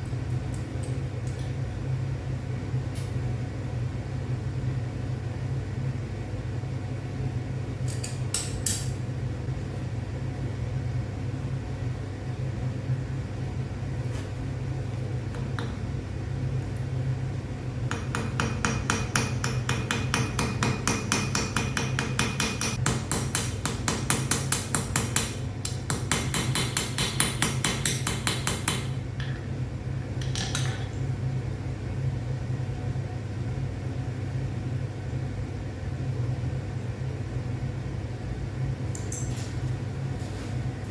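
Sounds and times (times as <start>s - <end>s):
steady low hum: 0.0s - 40.9s
hammer striking metal on anvil: 17.9s - 29.4s.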